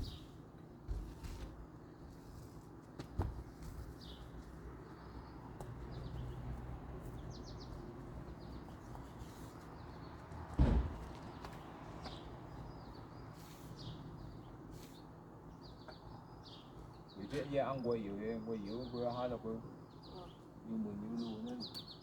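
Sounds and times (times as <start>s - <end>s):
small birds chirping: 0.0s - 22.0s
sharp knock: 10.6s - 11.0s
loud thump: 10.6s - 11.1s.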